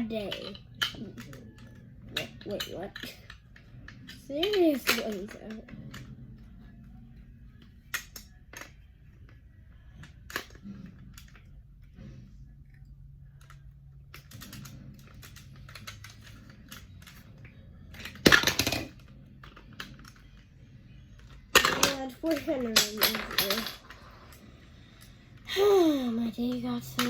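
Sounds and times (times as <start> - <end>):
loose plastic pieces clattering: 13.4 - 20.3
plastic bricks clicking and tapping: 13.4 - 20.4.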